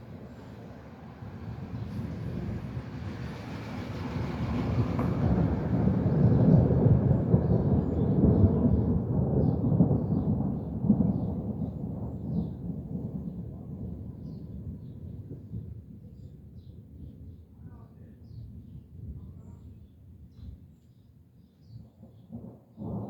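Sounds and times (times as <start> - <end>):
rolling thunder: 1.2 - 16.0, 22.3 - 23.0.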